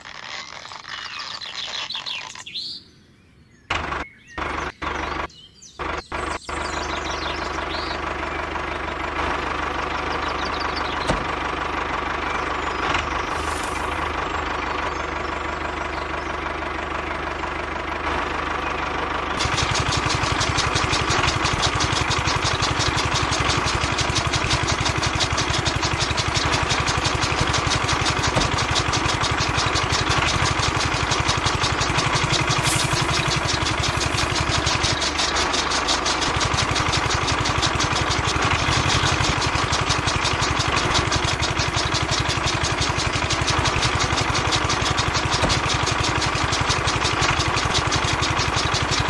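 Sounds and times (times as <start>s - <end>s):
chaff cutter chopping grass: 13.0s - 14.2s, 19.4s - 49.0s
small electric motor running: 13.2s - 14.1s, 19.4s - 35.2s.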